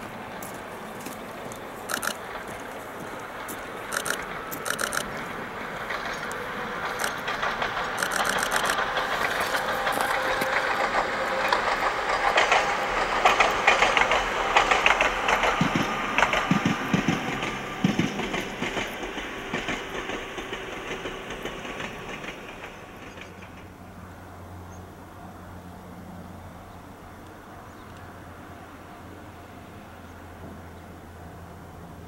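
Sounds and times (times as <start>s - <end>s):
wheels clicking over rail joints: 0.0s - 23.8s
electric train passing: 0.0s - 32.0s.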